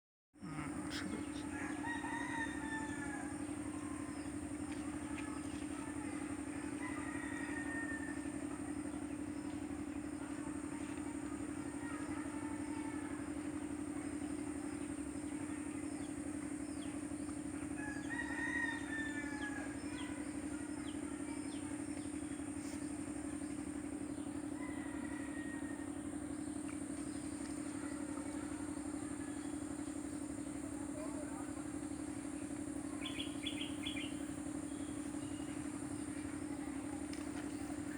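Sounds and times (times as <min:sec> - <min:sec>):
steady low hum: 0:00.4 - 0:37.9
rooster crowing: 0:00.5 - 0:04.0, 0:06.6 - 0:08.4, 0:17.8 - 0:20.2, 0:24.5 - 0:26.0.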